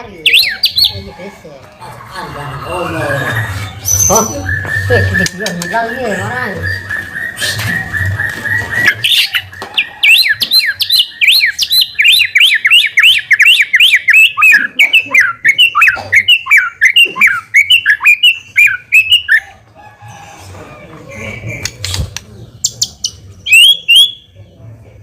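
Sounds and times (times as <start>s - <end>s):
bird singing whistled notes: 0.2s - 1.0s, 3.8s - 19.4s, 22.6s - 24.4s.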